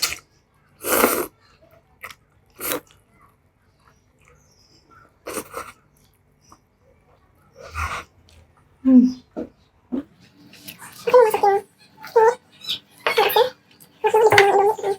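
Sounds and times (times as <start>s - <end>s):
faint chewing: 0.0s - 11.4s
noisy eating of noodles: 0.0s - 14.9s.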